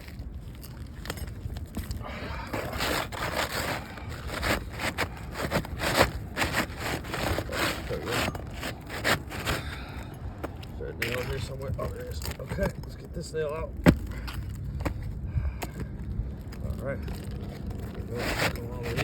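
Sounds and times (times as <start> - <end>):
shingle scraping and rustling: 0.0 - 19.0.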